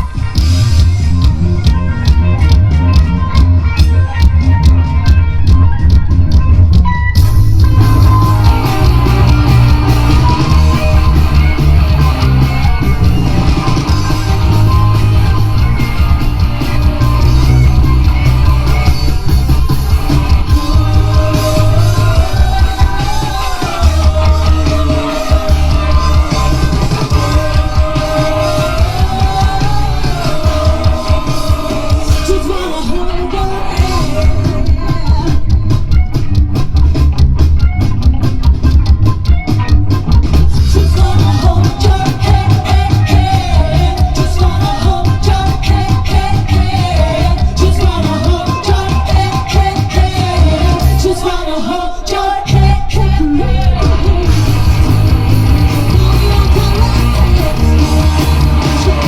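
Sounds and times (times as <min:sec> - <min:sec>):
live rock band playing: 0:00.0 - 0:59.0
loud shouted singing: 0:07.7 - 0:35.8, 0:40.6 - 0:59.0.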